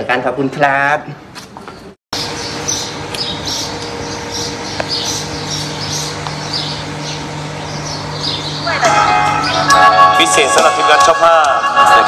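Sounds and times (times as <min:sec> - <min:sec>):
small birds chirping: 0:01.6 - 0:09.7
steady low hum: 0:02.2 - 0:12.0.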